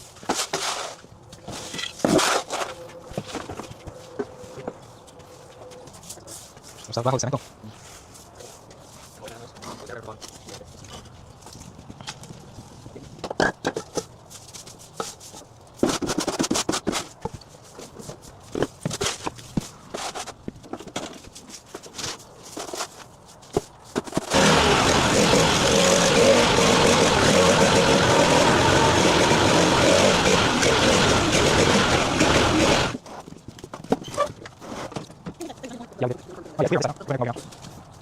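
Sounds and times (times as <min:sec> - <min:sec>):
hard objects knocking and clattering: 0:13.2 - 0:14.1
loud engine running: 0:24.3 - 0:33.0.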